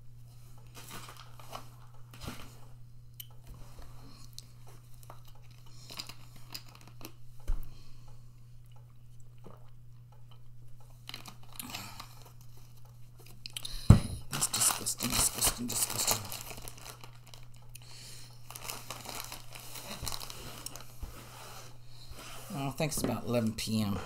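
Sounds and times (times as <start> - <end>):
plastic bottle crackling: 14.3 - 17.7, 18.4 - 21.0.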